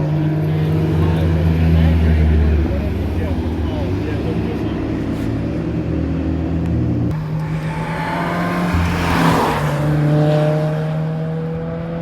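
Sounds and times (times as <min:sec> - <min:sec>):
engine hum: 0:00.0 - 0:12.0
car driving past: 0:07.1 - 0:12.0.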